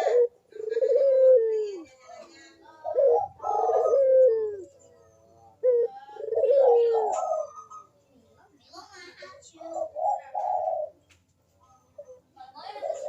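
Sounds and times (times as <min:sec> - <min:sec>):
dove cooing: 0:00.0 - 0:02.0, 0:02.7 - 0:08.0, 0:09.5 - 0:11.0, 0:12.0 - 0:13.0.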